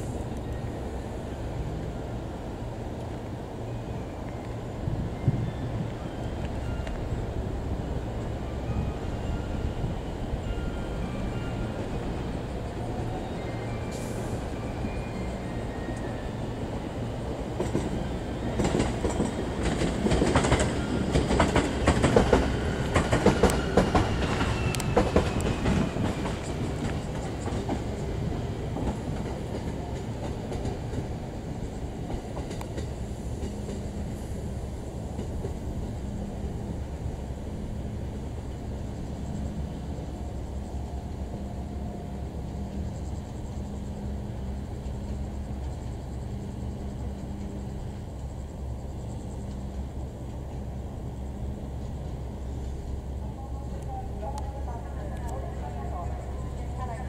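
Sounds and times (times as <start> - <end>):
low rumble of train equipment: 0.0 - 57.0
train wheels clattering over rails: 17.5 - 34.2.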